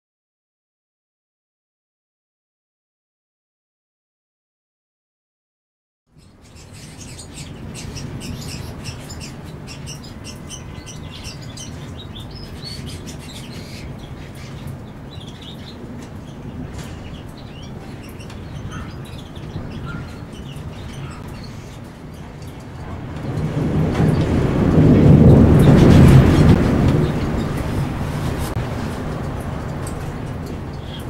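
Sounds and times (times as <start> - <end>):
small birds chirping: 6.1 - 23.4, 29.8 - 31.0
steady low rumble: 7.0 - 31.0.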